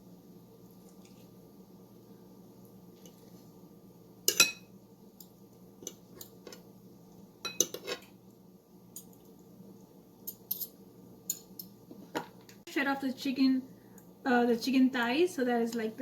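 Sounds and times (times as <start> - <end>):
forks clinking on a dish: 7.4 - 8.1, 10.3 - 11.8.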